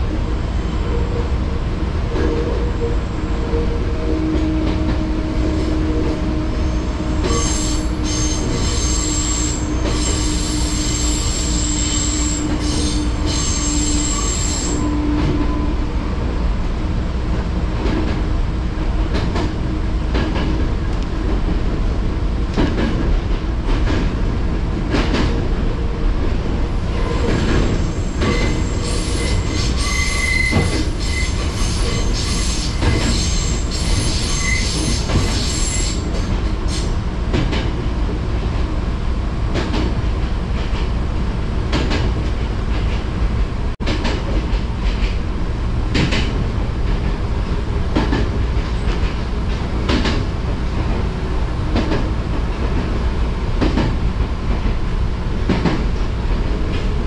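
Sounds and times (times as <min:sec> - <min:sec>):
train wheels rumbling on rail: 0:00.0 - 0:57.0
high-pitched wheel squeal: 0:06.6 - 0:15.0, 0:28.3 - 0:36.1.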